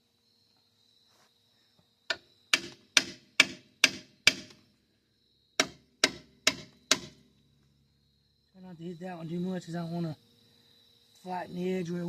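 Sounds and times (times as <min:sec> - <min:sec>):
hammer striking metal: 0:02.5 - 0:04.6, 0:05.6 - 0:07.2.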